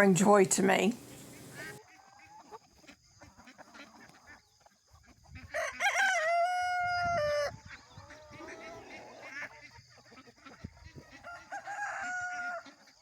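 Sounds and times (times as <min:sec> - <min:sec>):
soft chicken flock sounds: 0:00.2 - 0:13.0
rooster crowing: 0:05.5 - 0:07.6, 0:11.2 - 0:12.7.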